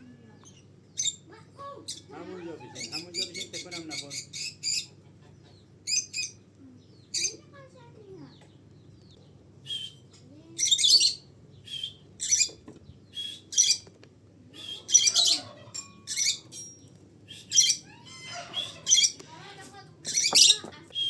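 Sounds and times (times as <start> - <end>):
birds squawking and chirping: 0.3 - 21.0
thin bird whistles: 9.6 - 10.1, 10.8 - 12.5, 13.1 - 13.8, 14.6 - 15.3, 17.3 - 17.8.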